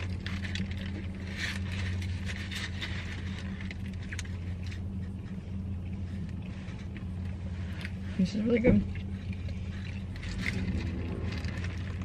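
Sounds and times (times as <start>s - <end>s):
paper wrapper crinkling: 0.0s - 5.3s, 9.7s - 12.0s
steady low hum: 0.0s - 12.0s.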